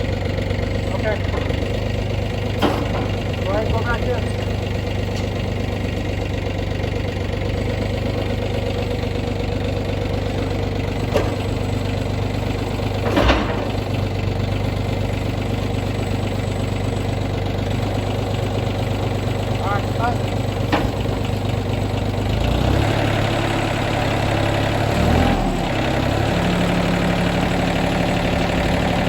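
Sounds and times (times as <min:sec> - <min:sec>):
loader engine idling: 0:00.0 - 0:29.0
loud clunk: 0:01.2 - 0:06.6, 0:09.6 - 0:16.0, 0:20.2 - 0:22.2.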